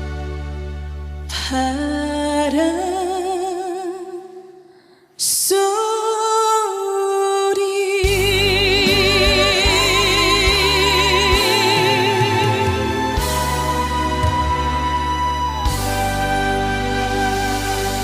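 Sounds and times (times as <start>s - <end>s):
band accompaniment with bass: 0.0s - 1.3s, 8.1s - 18.0s
woman singing with vibrato: 1.3s - 4.6s, 5.2s - 18.0s.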